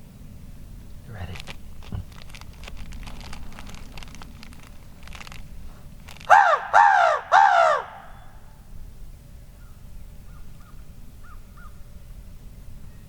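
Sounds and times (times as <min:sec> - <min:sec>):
light rustles: 0:01.3 - 0:06.3
small clicks: 0:01.3 - 0:06.3
crow call caws: 0:06.2 - 0:08.5.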